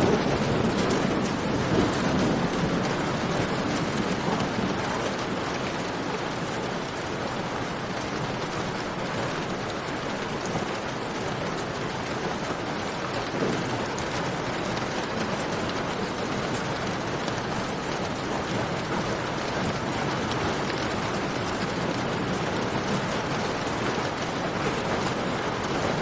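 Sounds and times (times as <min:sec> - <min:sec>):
heavy rain: 0:00.0 - 0:26.0.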